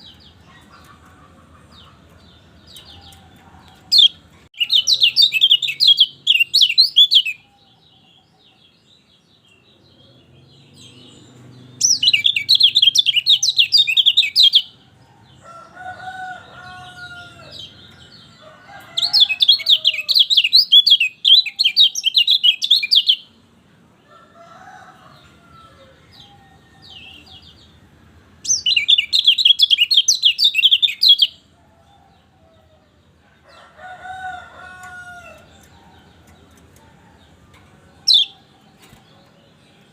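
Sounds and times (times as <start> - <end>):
bird twittering song: 1.8 - 14.9, 16.2 - 23.4, 28.4 - 31.5, 34.7 - 39.9.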